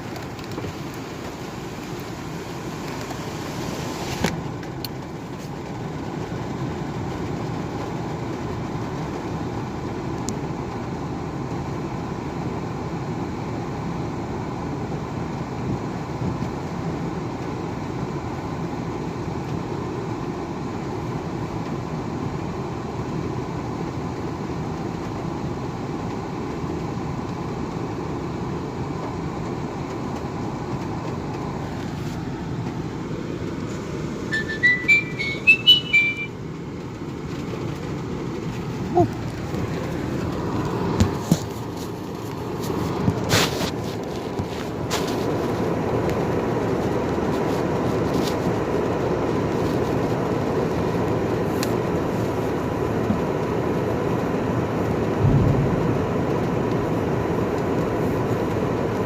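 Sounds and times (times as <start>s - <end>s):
car road noise: 0.0s - 59.0s.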